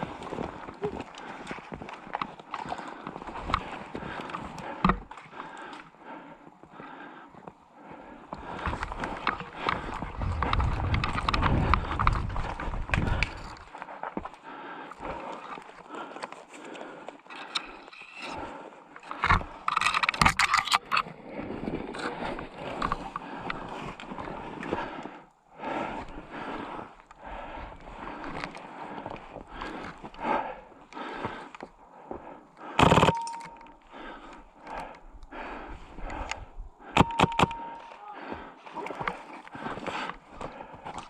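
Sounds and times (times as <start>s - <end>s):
wind rumble on microphone: 9.9s - 13.6s
sharp clicks: 32.8s - 33.8s, 36.1s - 38.0s.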